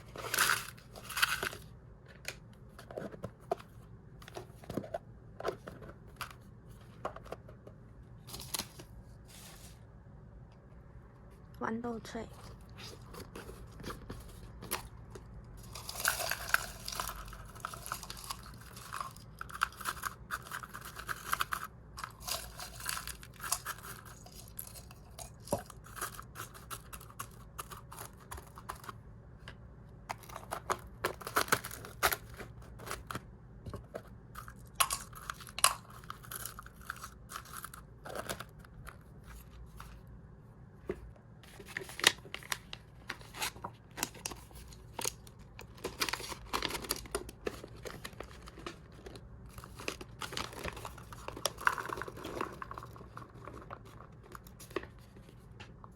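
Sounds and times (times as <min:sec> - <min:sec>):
plastic packaging crinkling: 0:12.8 - 0:28.9, 0:41.6 - 0:55.1.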